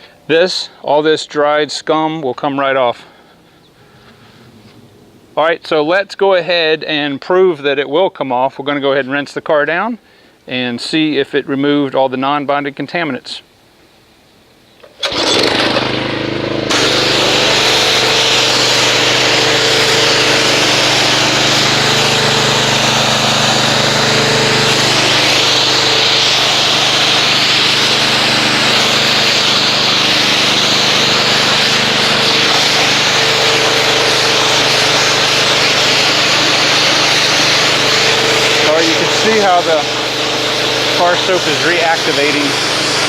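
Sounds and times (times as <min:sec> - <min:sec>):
pressure washer motor running: 0:14.8 - 0:43.0
water spray hissing: 0:15.1 - 0:43.0.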